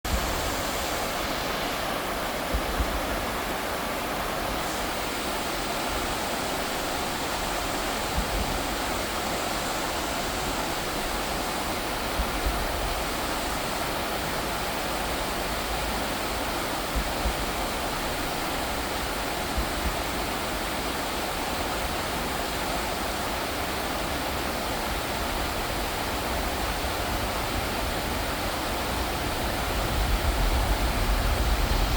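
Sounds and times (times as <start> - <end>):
stream rushing: 0.0 - 31.9.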